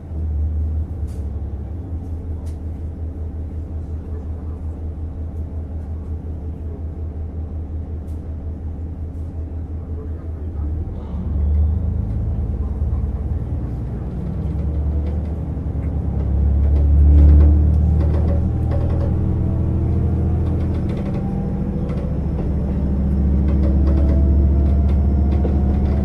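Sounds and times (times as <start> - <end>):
diesel railcar engine rumble: 0.0 - 26.0
rail clatter: 12.0 - 26.0.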